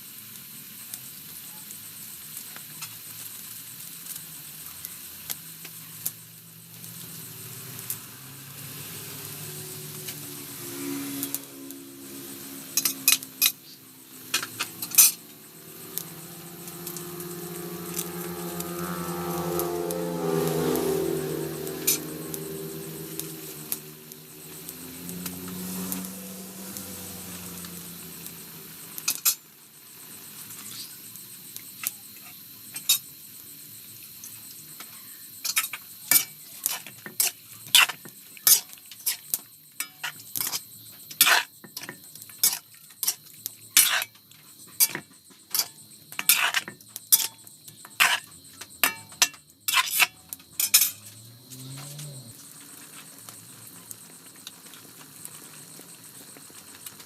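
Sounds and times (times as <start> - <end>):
high-pitched background tone: 9.1 - 28.2
metal spoon clinking on pan: 48.8 - 51.1.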